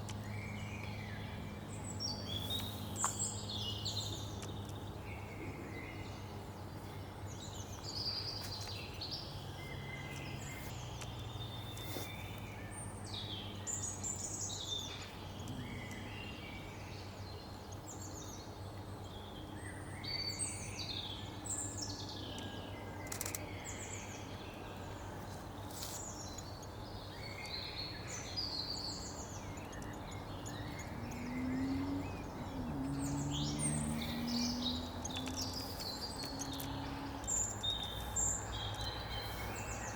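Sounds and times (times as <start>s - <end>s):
small birds chirping: 0.0s - 39.9s
low-pitched bird calls: 27.2s - 39.9s.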